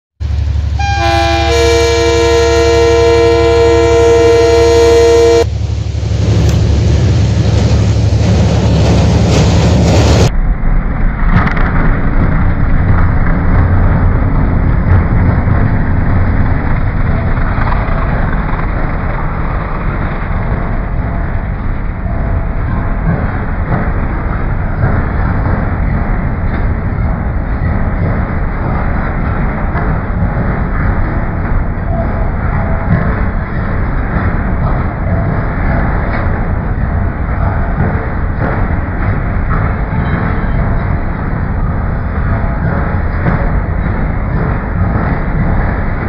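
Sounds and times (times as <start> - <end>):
locomotive engine rumble: 0.2 - 46.0
train wheels rumbling on rail: 0.2 - 46.0
locomotive air horn: 0.8 - 5.5.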